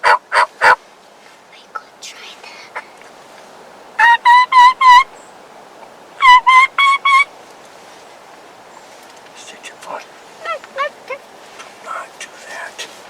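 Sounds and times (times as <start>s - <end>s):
turkey call hen yelps: 0.0s - 0.8s, 4.0s - 5.2s, 6.2s - 7.3s, 10.4s - 11.3s.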